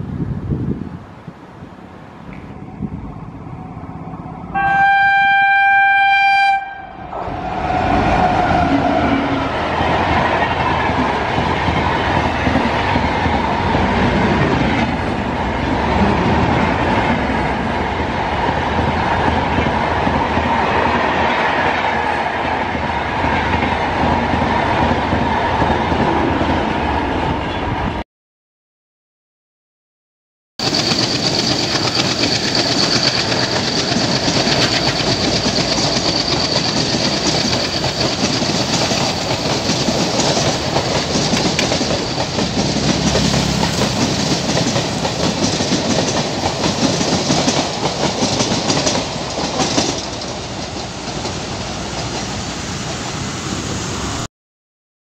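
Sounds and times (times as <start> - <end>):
locomotive horn blast: 4.5 - 9.6
train wheels rumbling and clattering: 7.2 - 27.4, 30.6 - 53.4.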